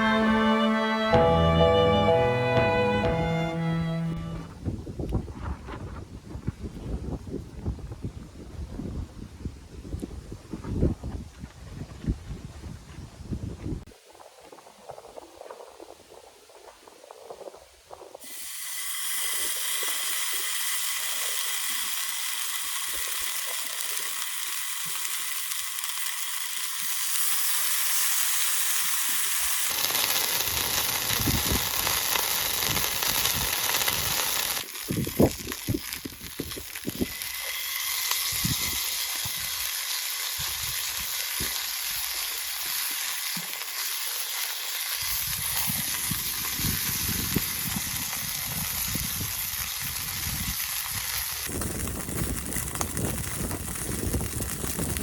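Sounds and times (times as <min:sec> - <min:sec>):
food sizzling in a pan: 0:18.2 - 0:55.0.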